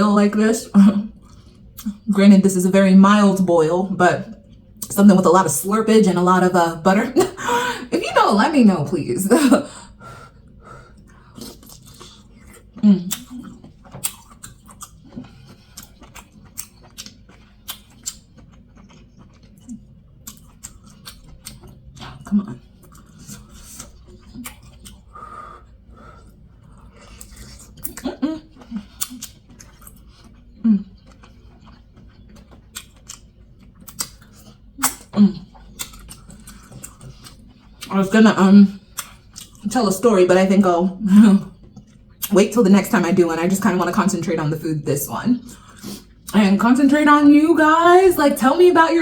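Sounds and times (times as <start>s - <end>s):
wet chewing and lip smacking: 1.1s - 2.1s, 10.3s - 37.9s, 38.8s - 39.7s, 41.4s - 42.4s.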